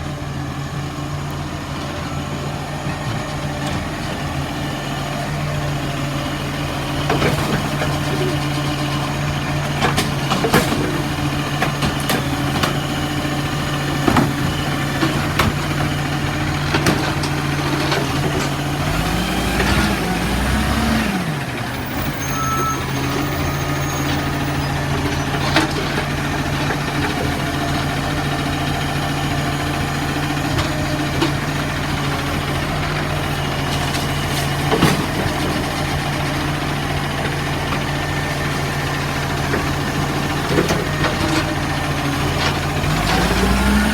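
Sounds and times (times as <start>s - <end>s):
garbage truck engine idling: 0.0s - 43.9s
clunks and knocks: 6.9s - 8.6s, 9.6s - 12.9s, 13.9s - 18.6s, 33.7s - 36.0s.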